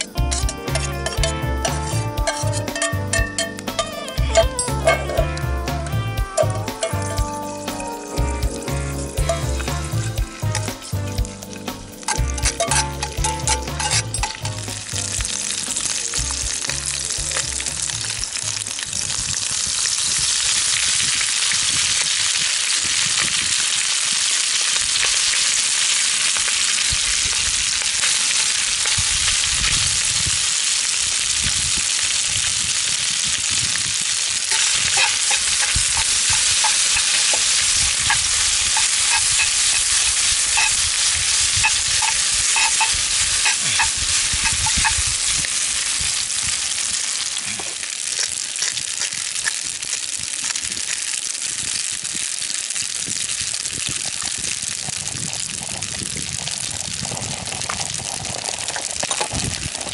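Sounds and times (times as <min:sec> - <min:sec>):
utensil clicking in a pan: 0:00.0 - 0:05.2, 0:11.6 - 0:18.4, 0:34.5 - 0:45.5, 0:47.7 - 0:51.1
food sizzling in a frying pan: 0:00.0 - 0:59.9.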